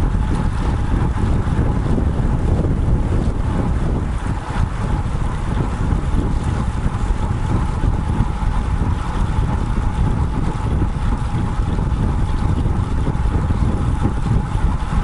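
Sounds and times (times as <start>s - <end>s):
tyre and road noise: 0.0s - 15.0s
wind buffeting microphone: 0.0s - 15.0s.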